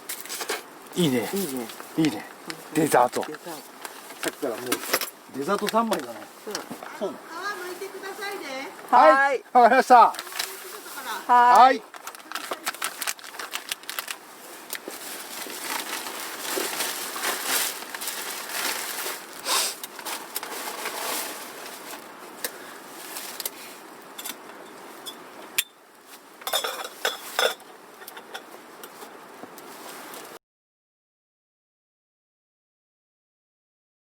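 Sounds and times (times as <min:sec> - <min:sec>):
peel crinkling and rustling: 0:00.0 - 0:08.6, 0:09.8 - 0:25.0.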